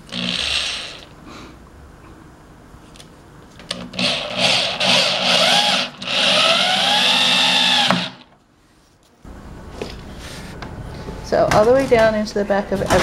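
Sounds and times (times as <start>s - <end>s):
power drill driving fasteners: 0.0s - 1.1s, 3.7s - 8.3s.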